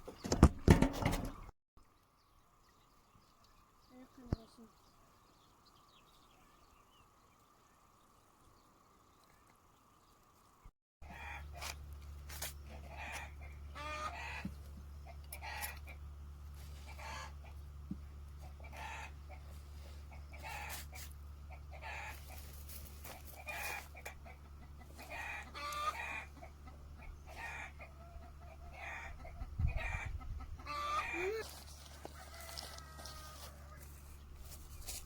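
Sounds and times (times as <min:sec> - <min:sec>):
chickens clucking: 0:11.0 - 0:11.8, 0:12.6 - 0:35.0.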